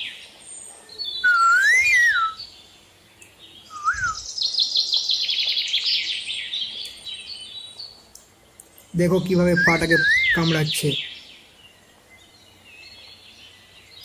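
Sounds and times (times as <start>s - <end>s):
parrot whistling and chattering: 1.2s - 2.4s, 3.7s - 4.2s, 9.5s - 10.5s.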